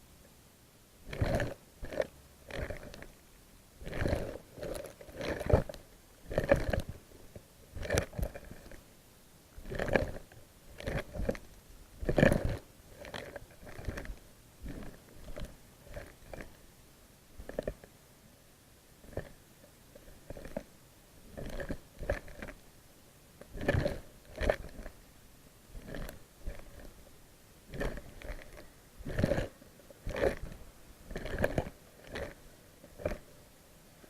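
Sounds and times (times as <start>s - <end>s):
underwater knocks and clicks: 1.1s - 3.1s, 3.8s - 7.0s, 7.8s - 8.8s, 9.6s - 11.4s, 12.0s - 16.6s, 17.4s - 17.8s, 21.3s - 22.6s, 23.4s - 25.0s, 25.8s - 27.0s, 27.7s - 32.4s.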